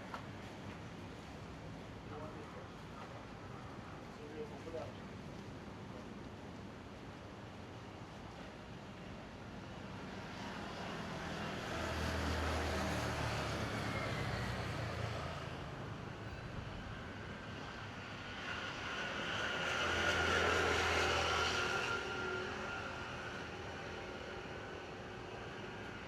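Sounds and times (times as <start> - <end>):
vehicle engines passing by: 10.3 - 25.5
steady background hum: 15.6 - 25.7.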